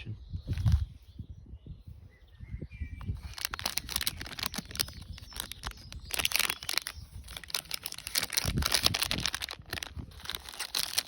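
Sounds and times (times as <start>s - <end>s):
plastic packaging crinkling: 3.2s - 11.0s.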